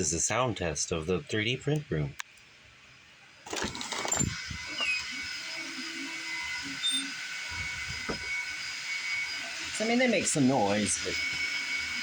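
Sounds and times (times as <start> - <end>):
printer cooling fans whirring: 1.1 - 12.0
low thumps: 7.5 - 8.5.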